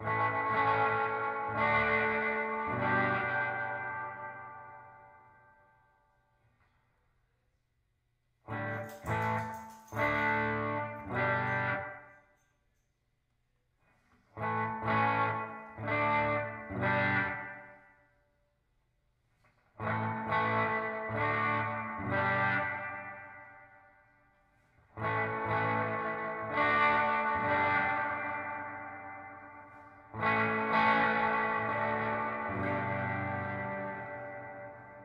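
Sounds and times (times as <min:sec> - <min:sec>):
electric guitar chords with reverb: 0:00.0 - 0:05.9, 0:08.5 - 0:12.1, 0:14.4 - 0:18.0, 0:19.8 - 0:24.0, 0:25.0 - 0:35.0.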